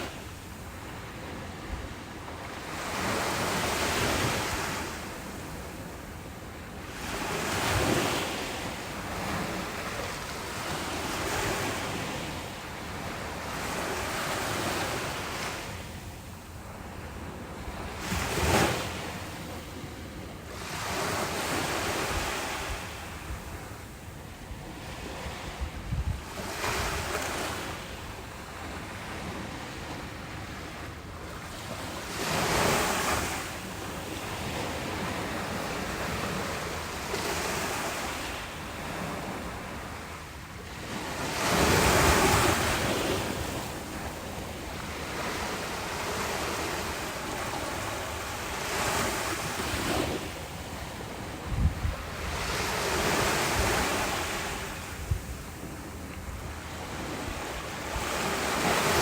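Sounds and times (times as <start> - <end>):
wind rumbling on microphone: 24.4 - 28.0, 48.8 - 59.0
ocean waves breaking: 26.2 - 59.0.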